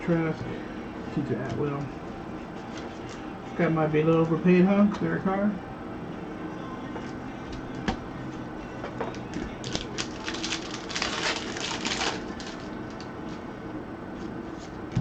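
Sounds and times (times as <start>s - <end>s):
trading cards flipping and rustling: 9.2s - 13.1s.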